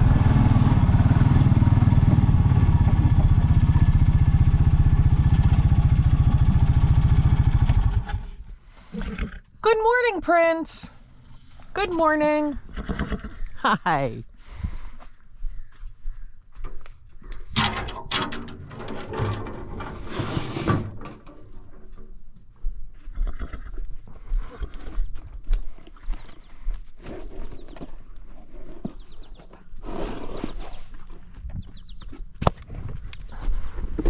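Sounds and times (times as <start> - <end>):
knocks and shuffling: 9.6 - 12.6, 14.8 - 23.1.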